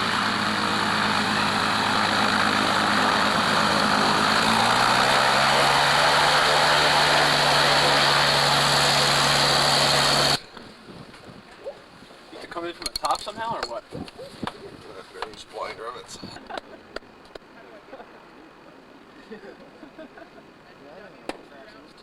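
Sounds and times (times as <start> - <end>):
propeller aircraft engine running: 0.0 - 12.0.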